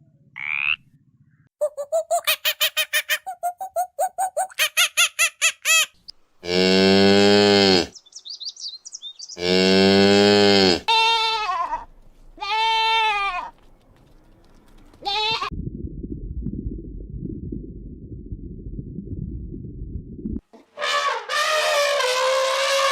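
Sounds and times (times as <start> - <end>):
faint chirping: 7.9 - 9.5.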